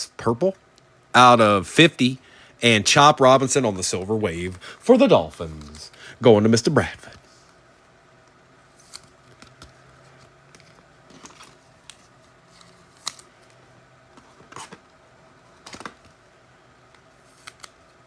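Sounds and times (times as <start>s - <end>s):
cards clicking and rustling: 8.8s - 14.8s, 15.6s - 16.2s, 17.0s - 17.9s.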